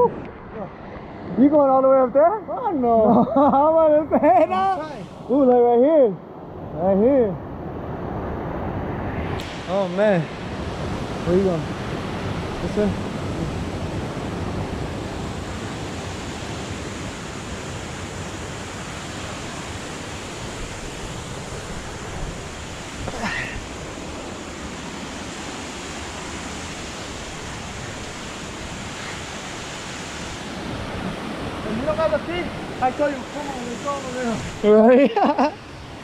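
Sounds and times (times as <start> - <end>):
waterfall rushing: 9.4 - 36.0.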